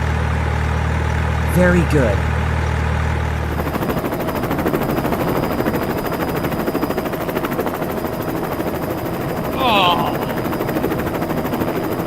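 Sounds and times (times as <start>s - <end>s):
helicopter rotor chopping: 3.4s - 12.0s.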